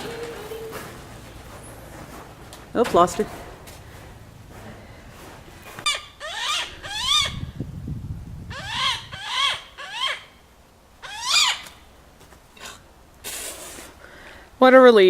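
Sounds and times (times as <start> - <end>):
hawk squealing calls: 5.9 - 7.4, 8.5 - 10.4, 11.0 - 11.8.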